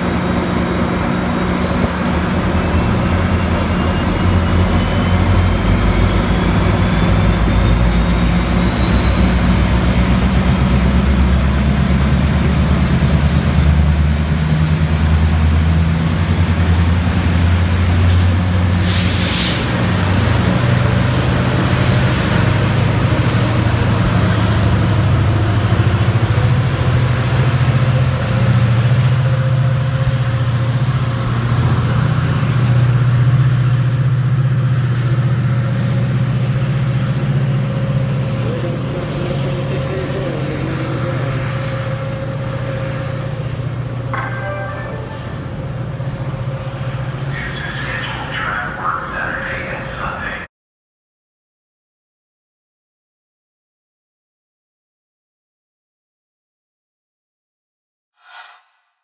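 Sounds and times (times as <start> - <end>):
diesel locomotive engine humming: 0.0 - 50.4
air brake hiss: 18.0 - 20.4.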